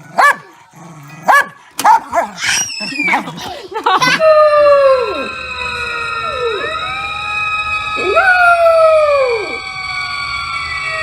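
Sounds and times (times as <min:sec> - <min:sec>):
dog howling: 0:02.0 - 0:11.0
siren sounding: 0:03.8 - 0:11.0.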